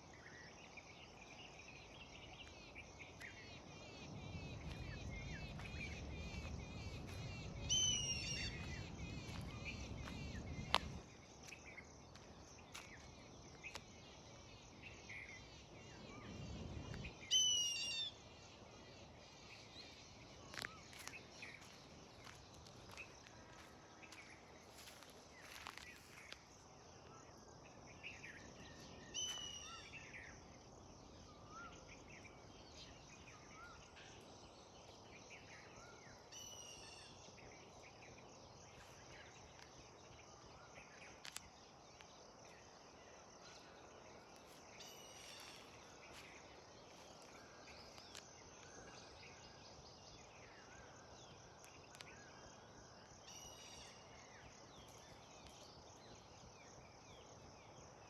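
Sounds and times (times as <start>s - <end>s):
birds chirping: 1.4s - 13.8s.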